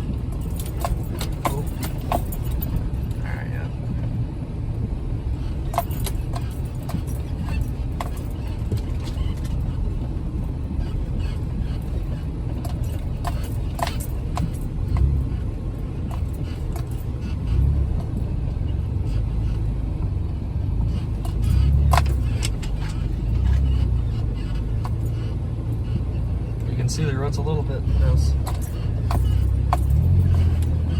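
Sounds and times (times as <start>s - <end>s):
knocks and rattles: 0.0s - 3.1s, 11.2s - 20.2s, 20.8s - 26.8s, 27.9s - 30.9s
vehicle engine rumble: 0.0s - 30.9s.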